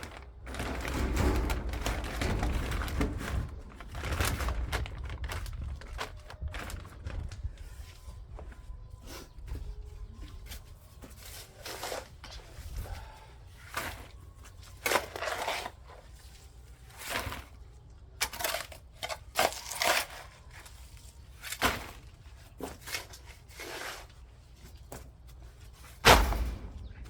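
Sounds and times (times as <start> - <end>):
digging tool scraping soil: 22.6 - 24.3.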